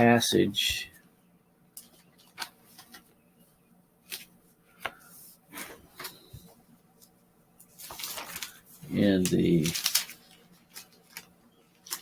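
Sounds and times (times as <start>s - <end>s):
thin pages turning: 1.8s - 3.2s, 4.0s - 12.0s.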